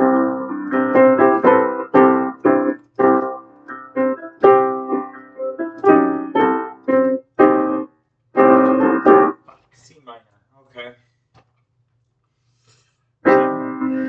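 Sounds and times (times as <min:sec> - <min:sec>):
piano chords: 0:00.0 - 0:09.4, 0:13.2 - 0:14.0.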